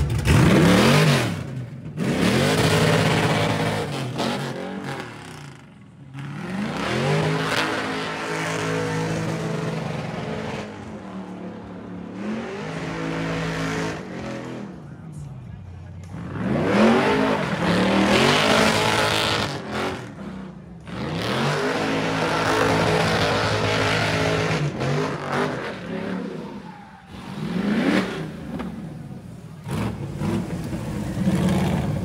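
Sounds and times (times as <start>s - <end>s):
car engine revving: 0.0s - 14.9s, 16.0s - 32.0s
spinning tyres rushing: 16.0s - 32.0s.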